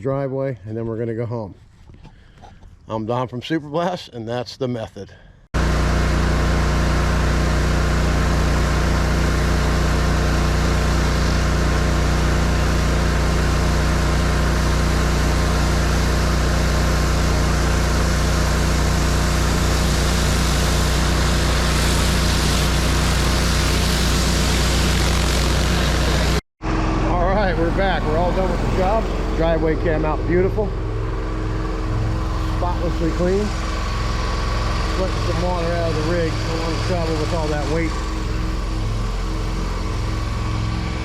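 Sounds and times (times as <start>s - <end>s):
pressure washer engine running: 5.6s - 41.0s
water hiss: 14.6s - 26.3s.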